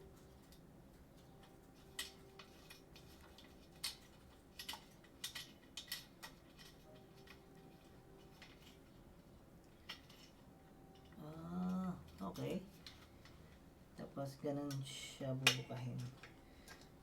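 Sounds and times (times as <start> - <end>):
faint steady hum: 0.0 - 17.0
metal stand clicking and knocking: 1.9 - 8.8.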